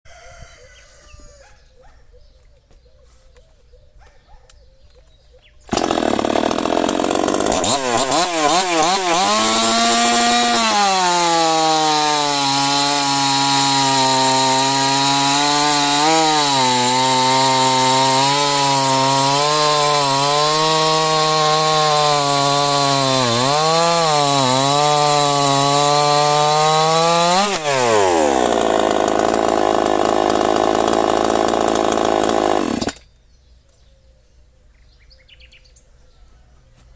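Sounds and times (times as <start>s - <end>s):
chainsaw running: 5.7s - 33.1s.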